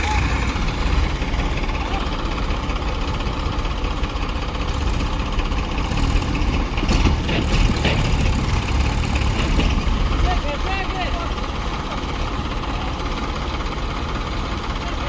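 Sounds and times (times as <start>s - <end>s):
sharp engine knocks: 0.0s - 12.0s
tractor engine running: 0.0s - 15.0s.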